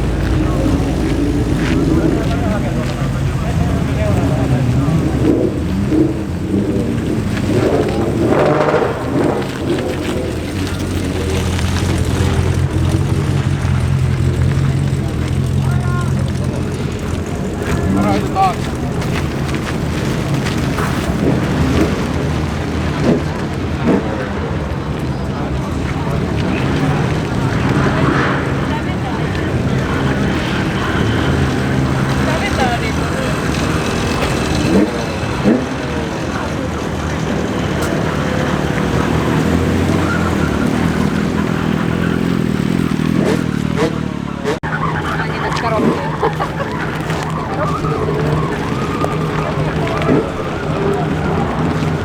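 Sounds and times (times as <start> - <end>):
car engines rumbling: 0.0 - 52.0
brief voices: 22.9 - 52.0.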